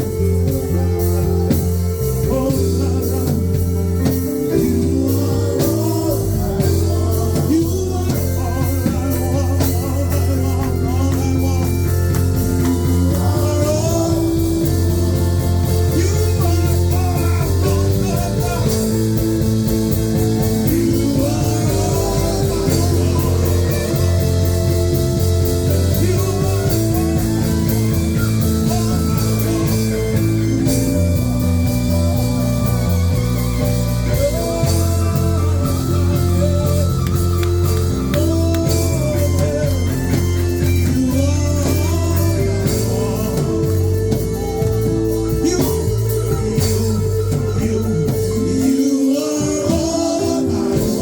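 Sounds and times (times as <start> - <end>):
bass guitar: 0.0 - 51.0
drums playing a groove: 0.0 - 51.0
electric guitar: 0.0 - 51.0
person singing: 0.0 - 51.0.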